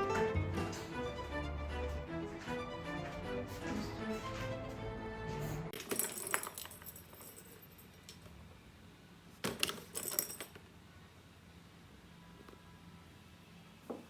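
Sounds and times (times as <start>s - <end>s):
background music: 0.0s - 5.8s
metallic jingling and clinking: 5.8s - 8.1s, 9.8s - 10.6s.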